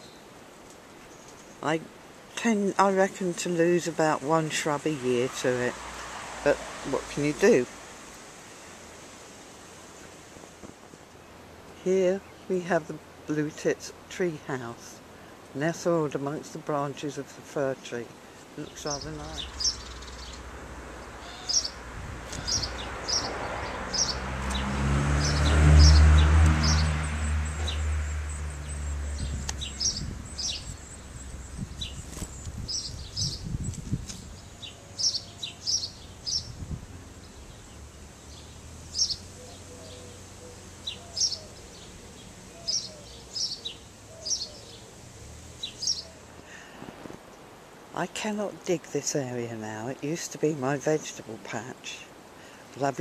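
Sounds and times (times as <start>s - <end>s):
small birds chirping: 0.0s - 8.8s, 9.8s - 53.0s
low rumble of passing vehicle: 4.8s - 9.2s, 18.9s - 46.4s.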